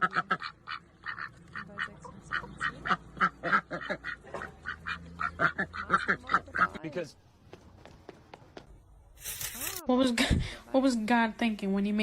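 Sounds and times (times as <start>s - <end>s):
ducks quacking: 0.0s - 6.8s.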